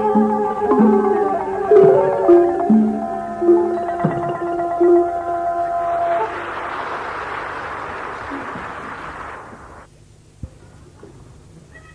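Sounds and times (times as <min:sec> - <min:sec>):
plucked zither notes: 0:00.0 - 0:06.3.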